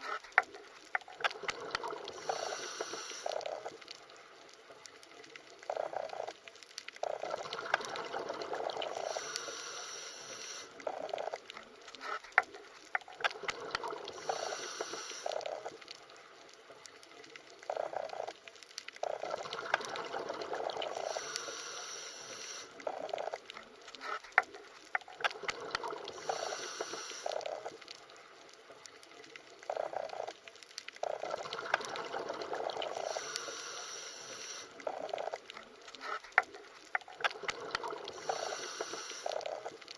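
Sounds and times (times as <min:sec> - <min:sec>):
underwater bubbling and gurgling: 0:00.0 - 0:39.9.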